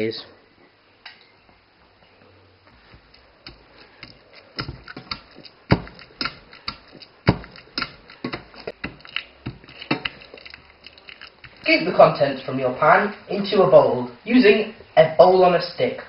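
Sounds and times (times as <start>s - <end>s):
potato masher knocking pan: 3.0s - 10.3s.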